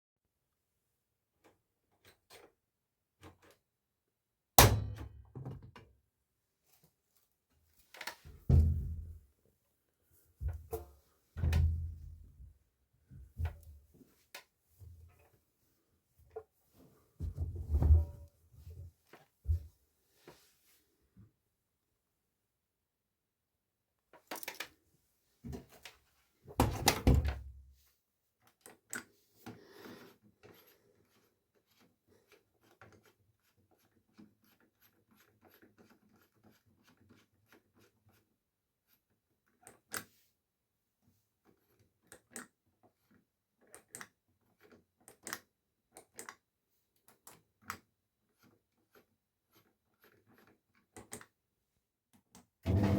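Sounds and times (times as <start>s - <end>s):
washing machine door thump: 4.6s - 5.2s, 8.5s - 9.1s.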